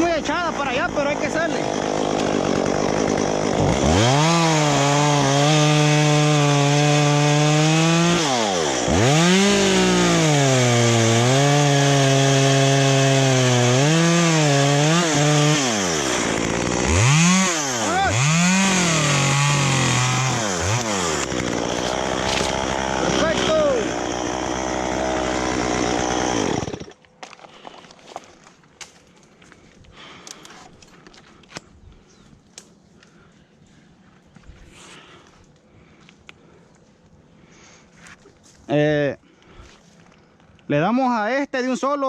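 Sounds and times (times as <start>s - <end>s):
chainsaw cutting wood: 0.0s - 28.4s.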